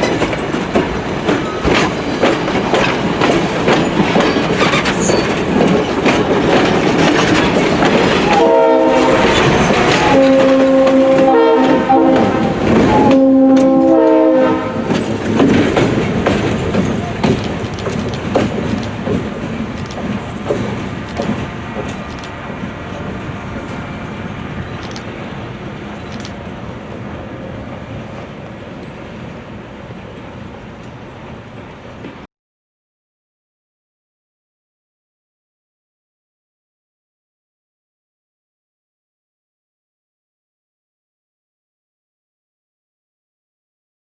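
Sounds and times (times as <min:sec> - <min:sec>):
train wheels clicking over rail joints: 0:00.0 - 0:29.3
locomotive air horn chord: 0:08.3 - 0:15.0.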